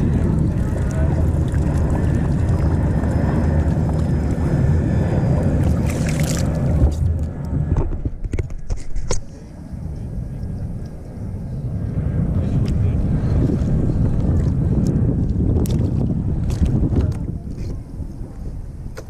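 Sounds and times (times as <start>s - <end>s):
water moving around kayak: 0.0s - 9.0s
wind rumbling on microphone: 0.0s - 19.0s
water splash: 5.6s - 6.8s.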